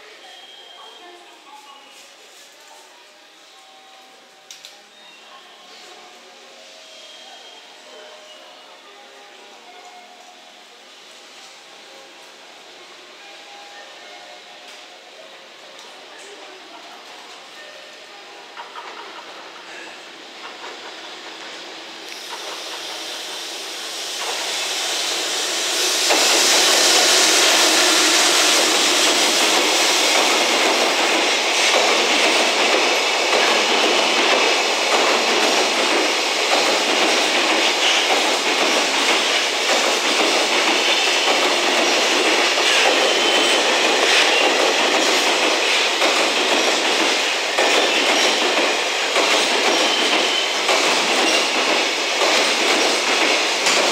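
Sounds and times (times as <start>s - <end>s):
train wheels rushing on rail: 17.3s - 53.9s.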